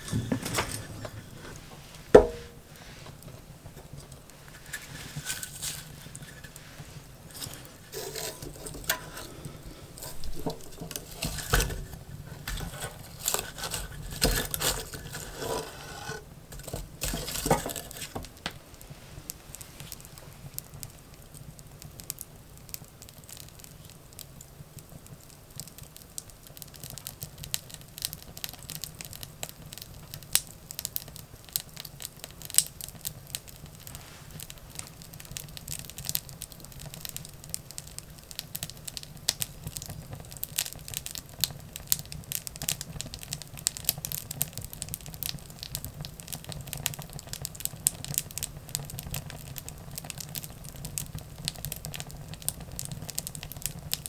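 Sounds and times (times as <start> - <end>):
firewood crackling and popping: 0.0 - 54.0
dull knocks: 2.1 - 2.6.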